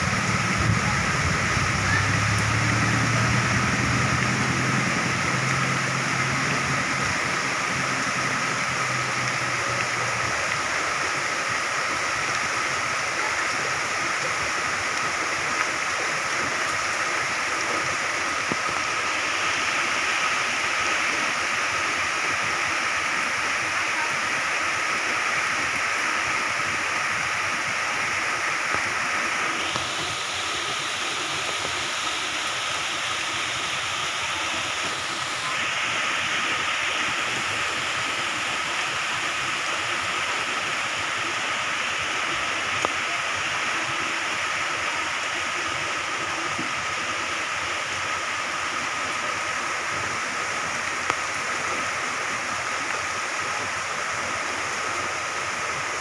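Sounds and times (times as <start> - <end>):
low hum: 0.0 - 10.6
heavy rain falling: 0.0 - 56.0.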